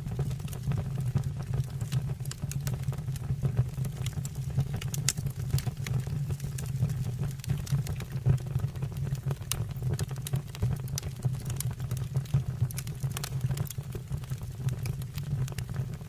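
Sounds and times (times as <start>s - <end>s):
burning wood crackling and popping: 0.0s - 16.0s
low rumble of flames: 0.0s - 16.0s.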